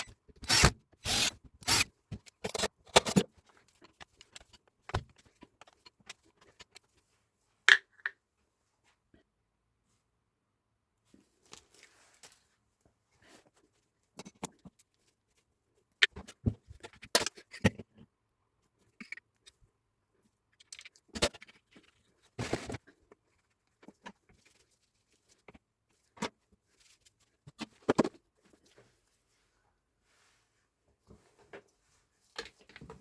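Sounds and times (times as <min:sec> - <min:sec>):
metal and plastic parts clicking: 0:00.0 - 0:06.8.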